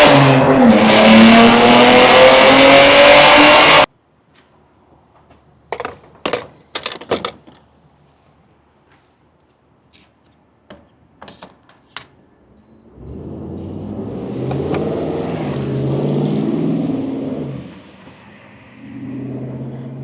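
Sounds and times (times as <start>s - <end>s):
car engine starting and revving: 0.0s - 3.9s, 12.8s - 20.0s.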